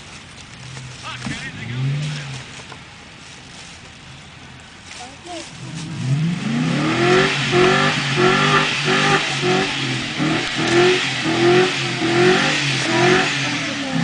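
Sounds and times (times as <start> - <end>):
truck engine revving hard: 5.7 - 14.0.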